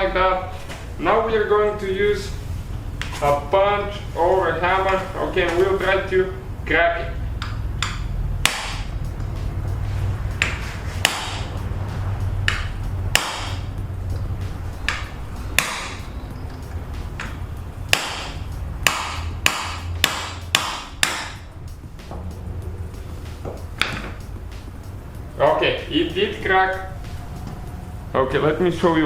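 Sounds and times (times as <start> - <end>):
hammer striking steel punch: 7.4 - 8.9, 10.4 - 11.5, 12.5 - 13.7, 14.9 - 16.1, 17.2 - 21.5.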